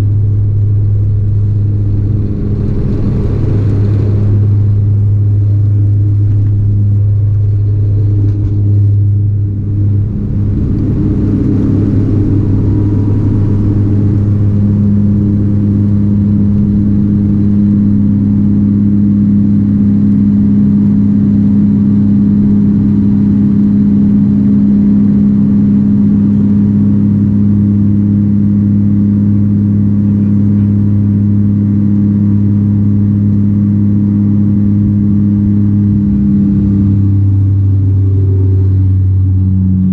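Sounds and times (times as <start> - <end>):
propeller drone in aircraft cabin: 0.0 - 39.9.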